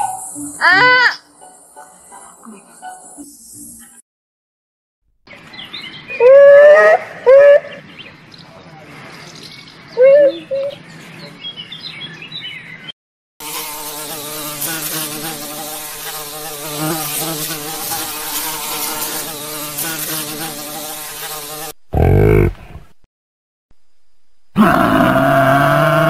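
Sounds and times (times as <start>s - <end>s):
honeybee buzzing: 13.4s - 22.5s.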